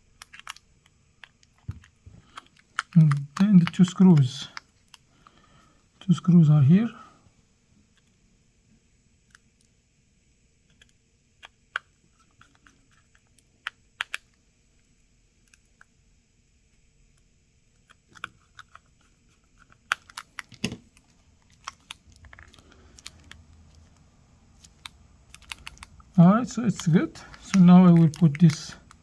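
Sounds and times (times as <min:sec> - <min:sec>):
small tools clicking on phone: 0:00.2 - 0:05.4, 0:10.6 - 0:14.4, 0:17.1 - 0:29.0.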